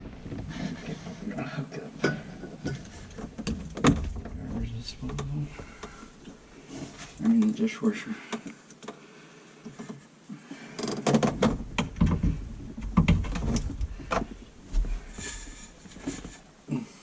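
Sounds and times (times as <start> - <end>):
knocks clicks and low thuds: 2.0 - 6.4, 11.0 - 16.4.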